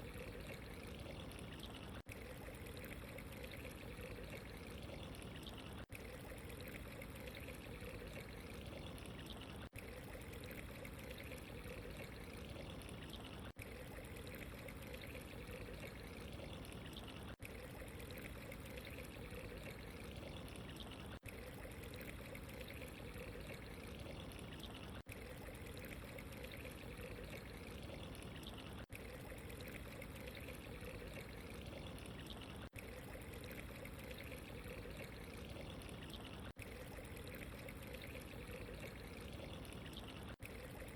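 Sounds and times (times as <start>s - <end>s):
trickling pouring water: 0.0s - 40.9s.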